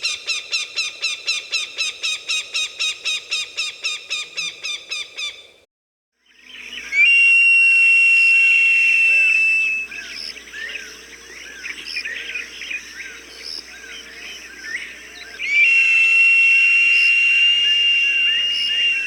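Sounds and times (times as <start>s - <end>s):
hawk whistling call: 6.9s - 10.0s, 15.4s - 19.0s.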